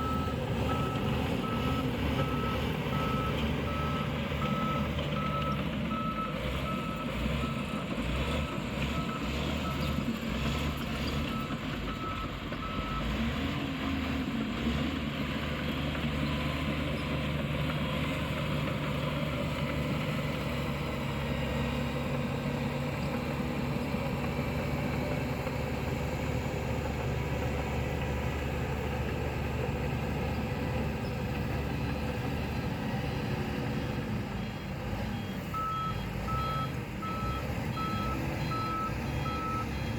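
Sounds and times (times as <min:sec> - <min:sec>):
reversing alarm beeping: 0:00.0 - 0:10.0, 0:34.4 - 0:39.9
diesel engine running: 0:00.0 - 0:39.9.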